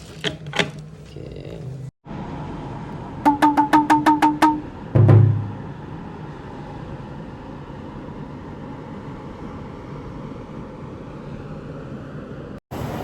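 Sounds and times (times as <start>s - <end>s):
low rumble: 4.6s - 6.4s.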